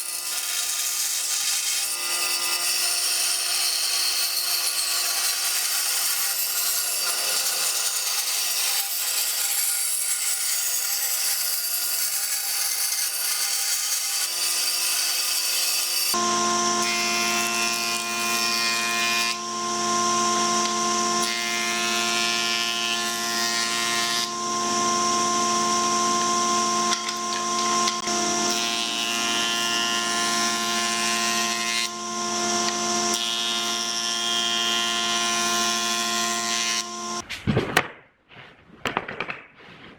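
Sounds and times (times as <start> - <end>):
power tool motor whining: 15.5 - 37.2.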